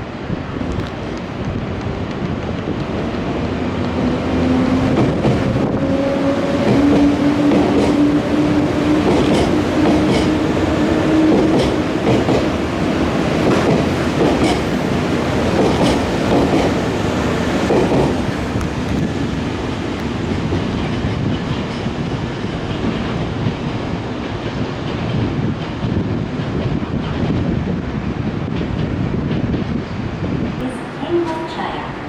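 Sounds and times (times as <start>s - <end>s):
wheels clacking over rail joints: 6.6s - 10.6s, 11.2s - 12.6s, 13.3s - 16.9s.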